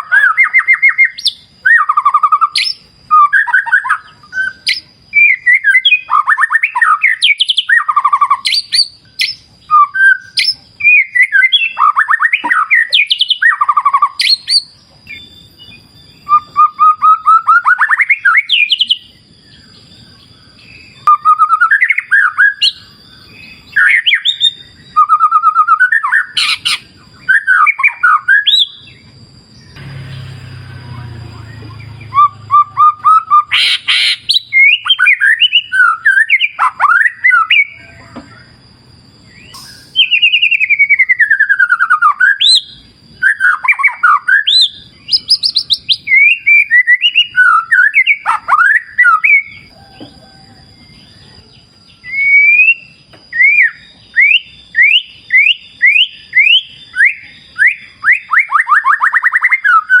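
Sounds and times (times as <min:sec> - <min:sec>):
bird singing whistled phrases: 0:00.0 - 1:00.0
faint steady high tone: 0:34.4 - 0:45.2.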